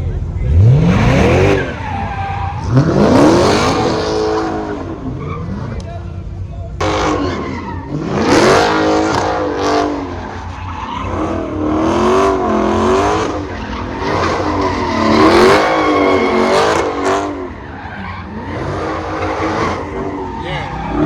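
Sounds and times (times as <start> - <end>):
car engine revving: 0.0 - 21.0
tyres squealing on pavement: 0.9 - 21.0.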